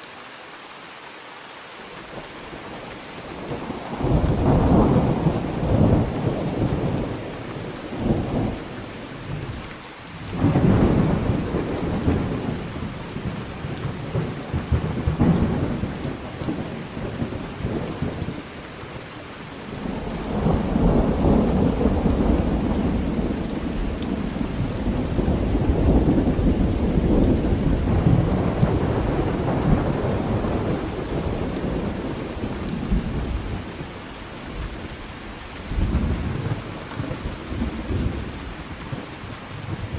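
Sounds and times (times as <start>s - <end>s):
steady rain: 0.0s - 39.9s
rolling thunder: 3.6s - 9.5s, 10.3s - 18.4s, 19.7s - 33.8s.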